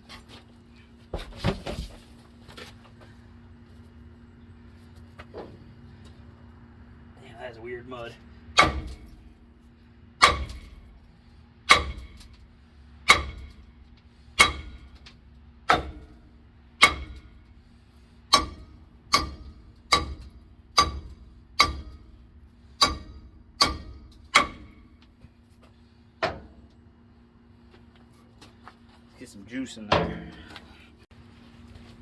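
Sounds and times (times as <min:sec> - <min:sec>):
hammer striking metal drum: 0:18.3 - 0:20.2, 0:20.8 - 0:22.0, 0:22.8 - 0:24.8.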